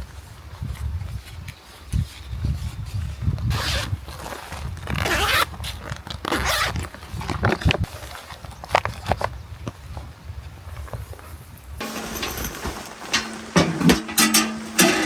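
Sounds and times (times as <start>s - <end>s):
zipper pulls: 3.5s - 7.8s
gear rustling: 11.8s - 15.0s.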